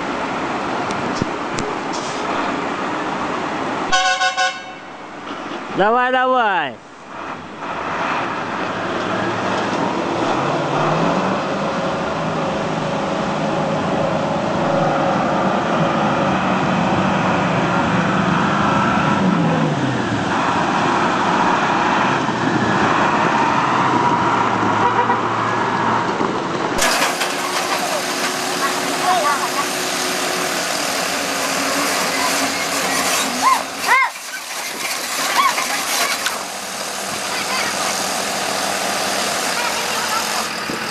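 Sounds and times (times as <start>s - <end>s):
road and traffic noise: 0.0s - 40.9s
vehicle engine running: 26.7s - 40.9s.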